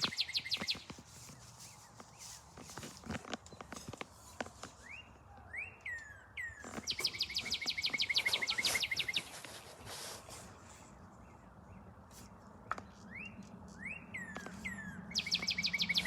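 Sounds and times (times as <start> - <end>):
songbird whistling and trilling: 0.0 - 0.9, 4.8 - 9.3, 13.1 - 16.0.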